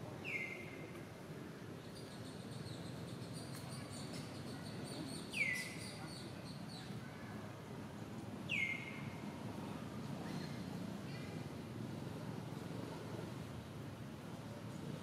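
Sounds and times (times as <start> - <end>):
whistled bird calls: 0.2 - 0.7.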